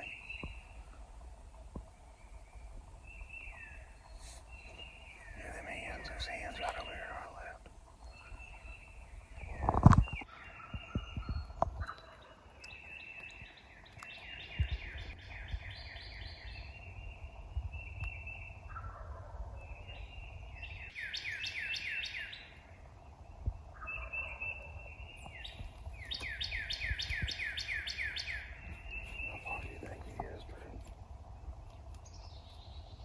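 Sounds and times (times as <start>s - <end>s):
wind rumble: 0.0s - 33.0s
wild turkeys calling: 18.0s - 20.1s.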